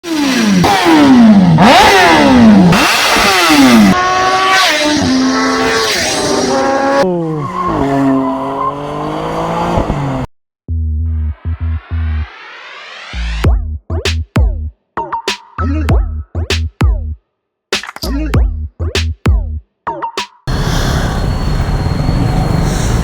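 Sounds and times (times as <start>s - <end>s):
superbikes passing at high revs: 0.1s - 10.3s.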